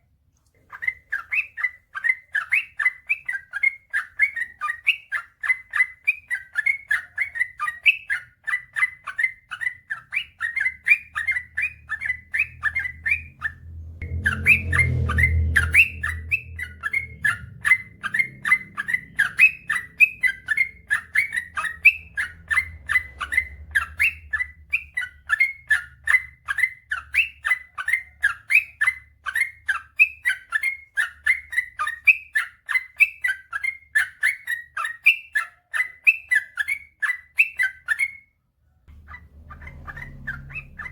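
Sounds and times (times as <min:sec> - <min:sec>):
bird singing chattering notes: 0:00.7 - 0:38.2, 0:38.9 - 0:40.9
low rumble: 0:12.5 - 0:20.0, 0:38.9 - 0:40.9.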